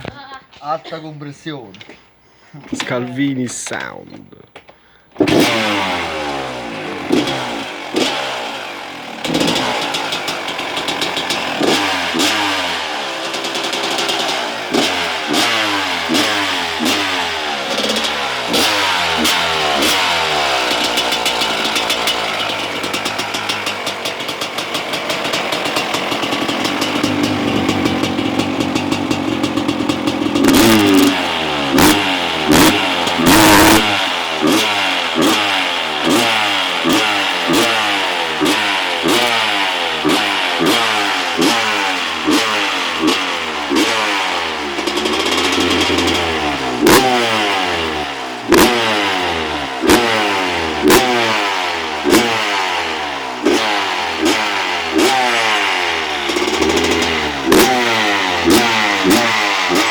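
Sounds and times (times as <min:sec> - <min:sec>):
motocross engine revving: 0:05.1 - 0:59.9.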